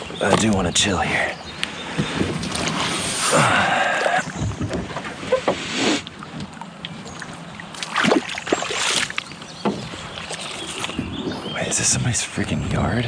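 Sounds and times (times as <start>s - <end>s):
paddle splashing in water: 1.2s - 11.5s.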